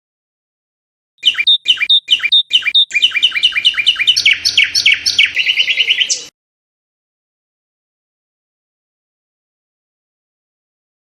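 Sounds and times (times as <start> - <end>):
songbird chirping and trilling: 1.2 - 6.4.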